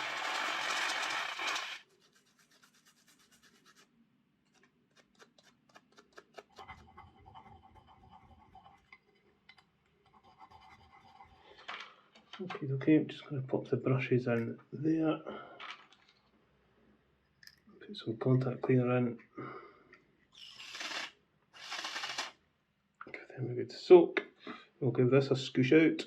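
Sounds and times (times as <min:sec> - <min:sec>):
faint scratching: 0:01.8 - 0:09.3, 0:10.0 - 0:12.3.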